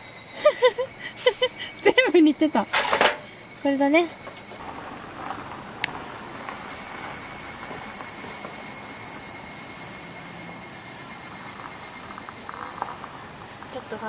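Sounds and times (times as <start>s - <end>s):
cicadas calling: 0.0s - 14.0s.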